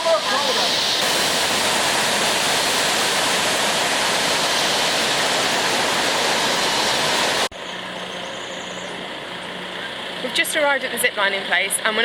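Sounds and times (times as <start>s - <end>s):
waterfall rushing: 0.0s - 7.5s.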